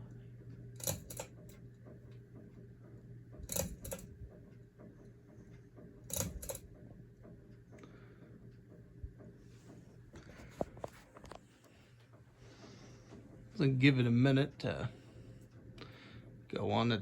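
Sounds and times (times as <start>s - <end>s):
fan motor hum: 0.0s - 17.0s
fan switch clicking: 0.8s - 1.4s, 3.4s - 4.2s, 6.1s - 6.7s.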